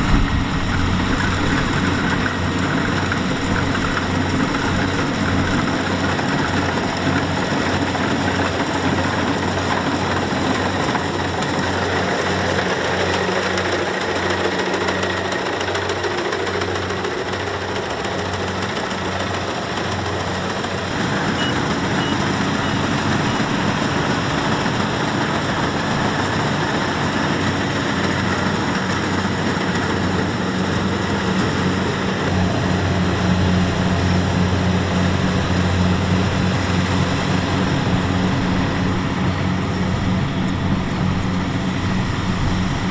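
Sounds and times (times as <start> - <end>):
harvester engine droning: 0.0 - 42.9.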